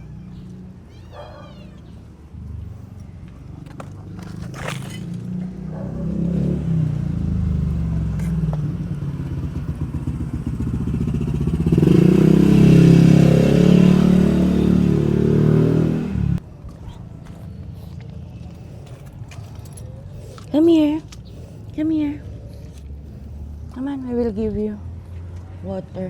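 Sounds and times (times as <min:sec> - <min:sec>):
small vehicle engine running: 0:00.0 - 0:16.4.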